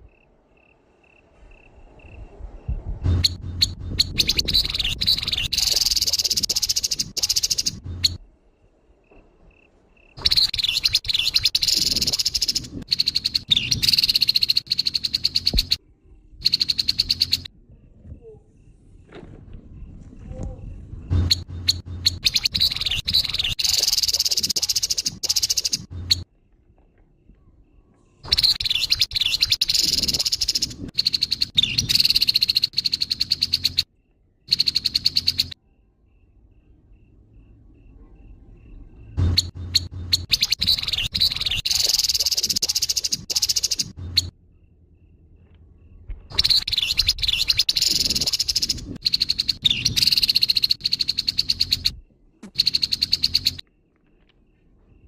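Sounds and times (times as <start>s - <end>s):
bird chattering call: 3.1s - 8.2s, 10.2s - 15.8s, 16.4s - 17.5s, 21.2s - 26.2s, 39.2s - 44.3s, 46.3s - 52.0s, 52.6s - 53.6s.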